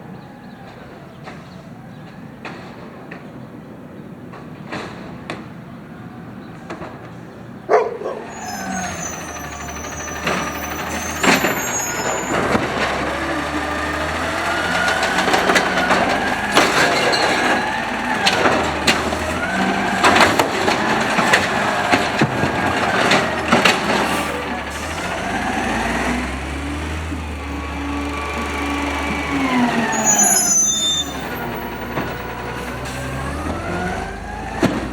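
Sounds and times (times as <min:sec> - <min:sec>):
truck engine running: 0:07.7 - 0:34.9
metal bangs of cart slamming: 0:07.8 - 0:34.9
hydraulic whine: 0:08.2 - 0:34.9.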